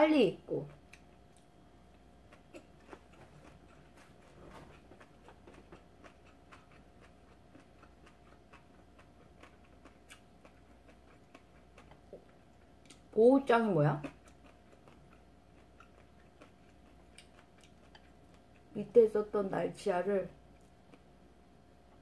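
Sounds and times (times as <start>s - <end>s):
low steady hum: 0.0s - 22.0s
chewing mouth clicks: 2.3s - 13.1s, 14.0s - 18.7s.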